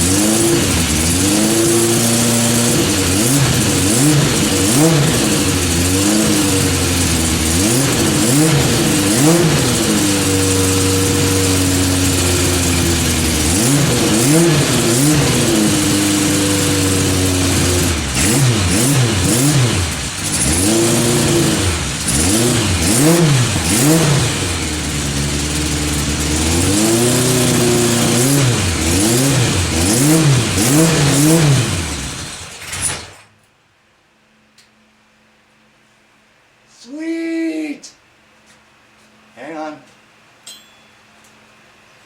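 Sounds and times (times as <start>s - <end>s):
motorcycle engine revving: 0.0s - 33.2s.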